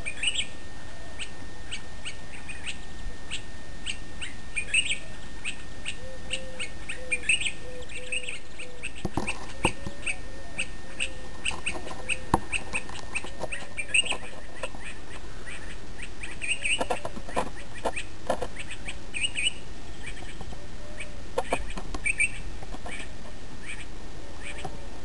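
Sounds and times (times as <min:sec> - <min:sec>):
background hiss: 0:00.0 - 0:25.0
lower arching bird calls: 0:00.0 - 0:25.0
high bird chirps: 0:01.2 - 0:17.0, 0:17.6 - 0:24.6.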